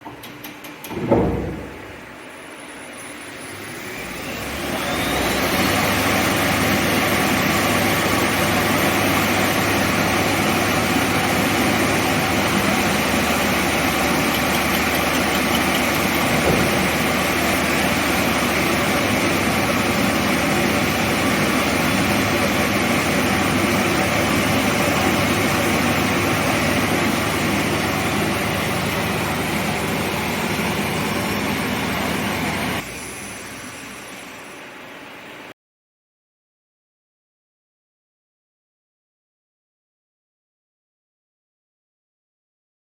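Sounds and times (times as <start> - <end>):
lathe spindle humming: 1.8 - 32.9.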